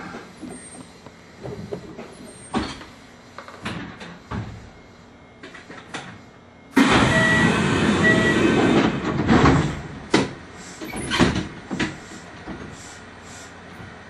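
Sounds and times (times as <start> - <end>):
short beeps: 6.8 - 8.6.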